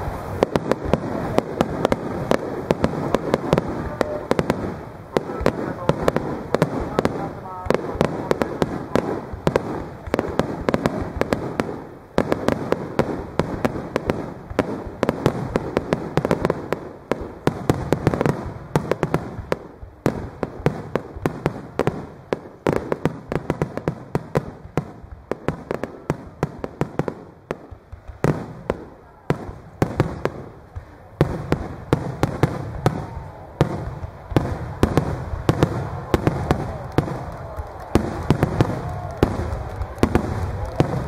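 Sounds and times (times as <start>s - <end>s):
firework rumble: 0.0s - 41.0s.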